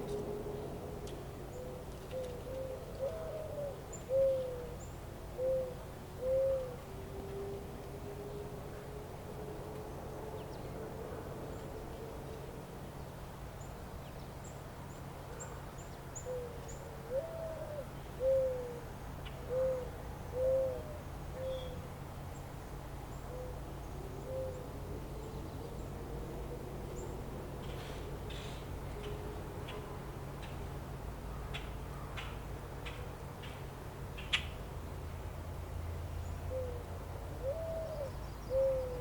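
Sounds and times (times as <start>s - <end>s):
bird hooting: 1.5s - 4.8s, 5.4s - 6.8s, 16.2s - 18.8s, 19.4s - 21.8s, 24.2s - 24.7s, 36.5s - 39.0s.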